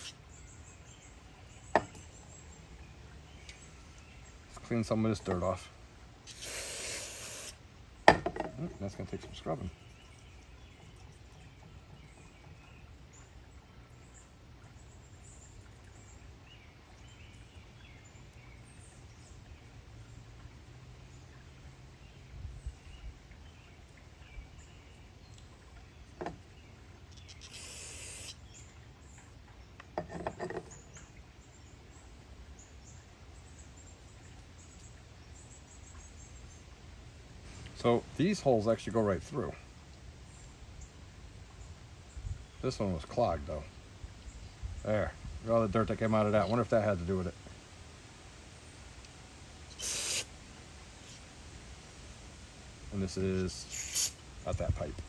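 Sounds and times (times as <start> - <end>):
short hiss: 6.3 - 7.6, 27.4 - 28.4, 49.7 - 50.4, 53.6 - 54.2.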